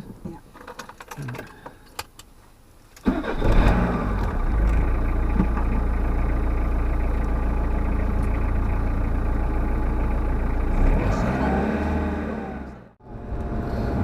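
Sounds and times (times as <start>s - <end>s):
motorhome engine starting and idling: 3.0s - 14.0s.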